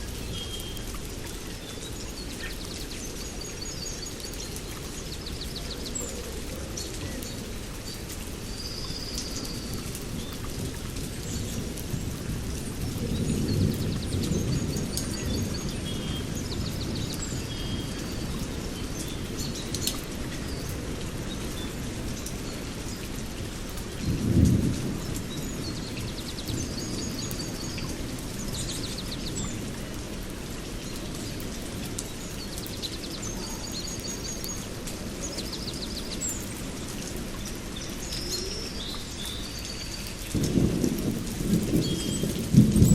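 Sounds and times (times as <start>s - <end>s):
rain: 0.0s - 42.9s
rumbling thunder: 9.6s - 18.8s, 24.0s - 29.8s, 40.2s - 42.9s.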